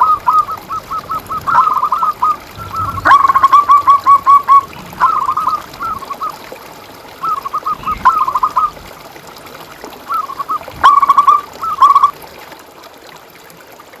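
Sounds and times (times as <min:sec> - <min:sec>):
dove cooing: 0:00.0 - 0:06.5, 0:07.2 - 0:09.0, 0:10.1 - 0:12.1.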